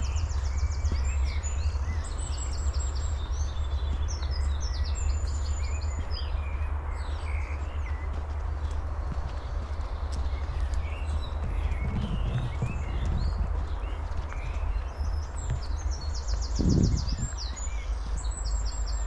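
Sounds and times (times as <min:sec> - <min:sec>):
small birds chirping and trilling: 0:00.0 - 0:19.0
steady low rumble: 0:05.4 - 0:19.0.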